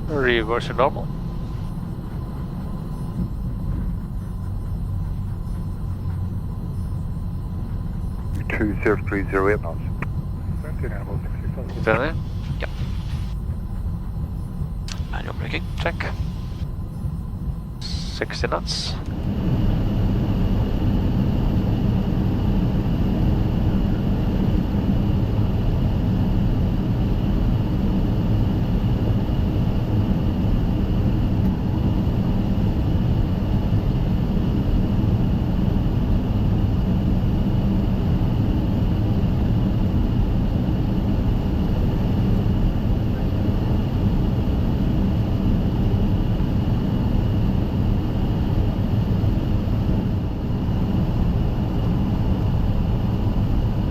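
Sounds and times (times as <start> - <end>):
high-pitched whine: 0.0 - 25.9
low rumble and hum: 0.0 - 53.9.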